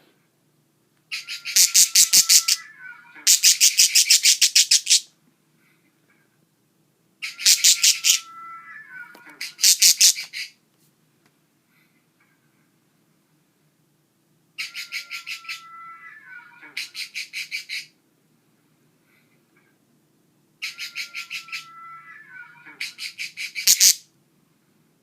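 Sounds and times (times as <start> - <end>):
budgerigar chattering: 3.3 - 5.1, 7.2 - 8.2, 9.4 - 10.5, 22.8 - 24.0.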